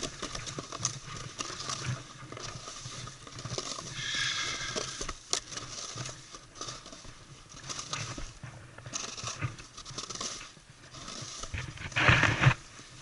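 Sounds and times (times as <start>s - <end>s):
snowboard scraping over snow: 3.9s - 5.2s.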